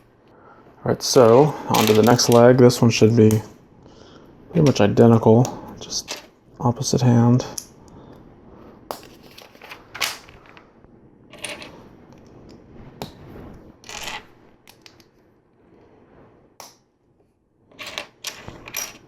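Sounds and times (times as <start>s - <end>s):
plastic bricks clicking and clattering: 1.7s - 2.5s, 17.7s - 19.0s.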